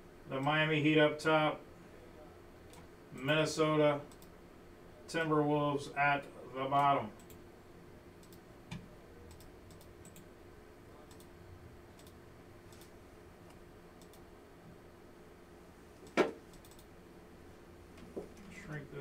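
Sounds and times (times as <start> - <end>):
steady low hum: 0.0 - 19.0
computer mouse clicks: 4.1 - 4.3, 6.8 - 7.4, 8.2 - 10.3, 11.1 - 11.3, 11.9 - 12.9, 13.5 - 14.2, 16.0 - 16.9.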